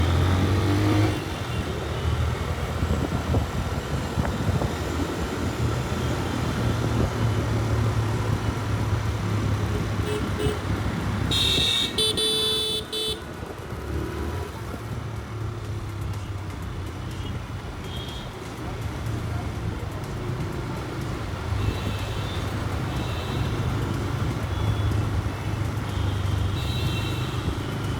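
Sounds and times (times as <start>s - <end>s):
road and wind noise: 0.0s - 27.9s
vehicle horn: 9.7s - 10.7s, 11.3s - 13.2s, 21.6s - 23.8s, 25.9s - 27.7s.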